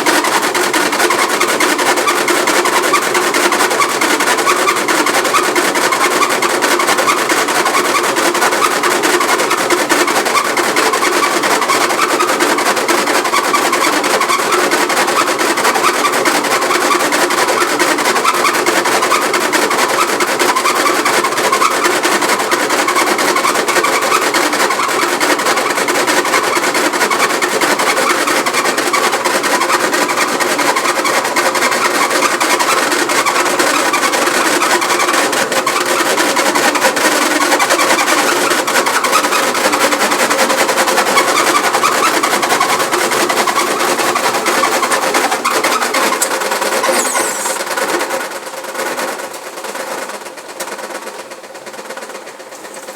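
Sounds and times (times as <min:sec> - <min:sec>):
washing machine running: 0:00.0 - 0:48.5
fine rattle: 0:19.8 - 0:48.6.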